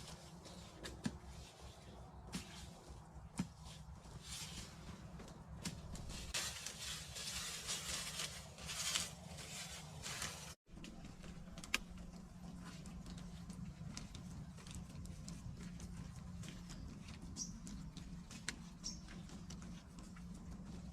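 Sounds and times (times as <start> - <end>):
rustling handling noise: 0.0 - 20.9.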